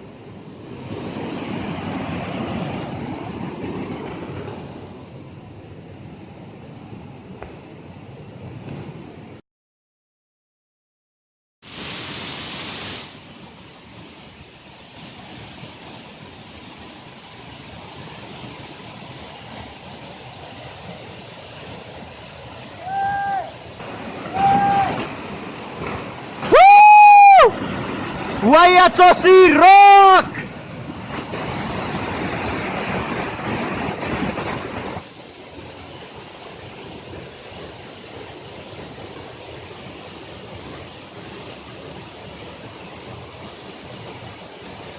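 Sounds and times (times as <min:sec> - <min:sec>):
waterfall rushing: 0:11.7 - 0:44.9.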